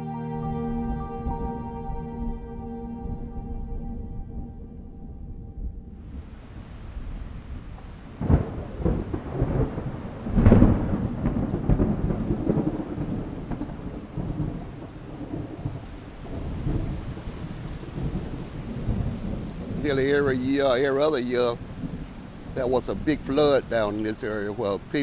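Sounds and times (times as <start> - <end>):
thunder rumbling: 1.2 - 25.0
thunder clap: 3.1 - 25.0
steady rain: 6.0 - 25.0.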